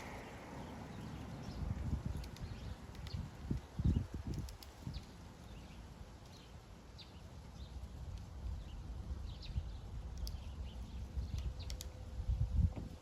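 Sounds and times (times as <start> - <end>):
steady low rumble: 0.0 - 4.2.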